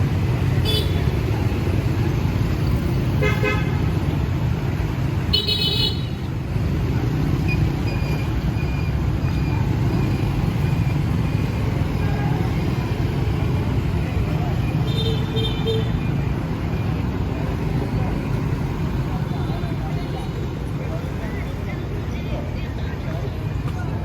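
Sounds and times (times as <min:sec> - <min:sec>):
street traffic rumble: 0:00.0 - 0:24.0
vehicle horn honks: 0:03.2 - 0:03.8.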